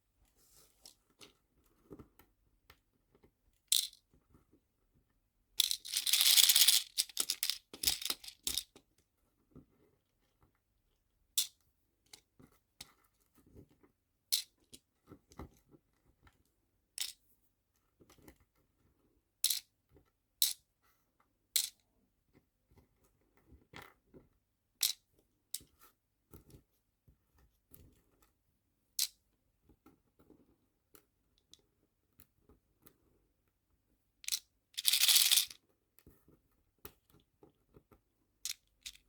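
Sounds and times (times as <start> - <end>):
small plastic objects clicking: 3.7 - 4.0, 5.6 - 8.6, 34.3 - 35.6.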